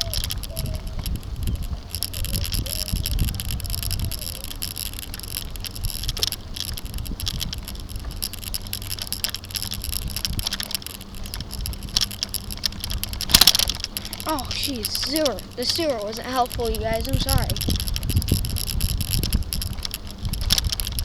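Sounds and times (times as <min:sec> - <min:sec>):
bicycle rattling clicks: 0:00.0 - 0:21.0
bicycle tyres rumbling on bumpy road: 0:00.0 - 0:21.0.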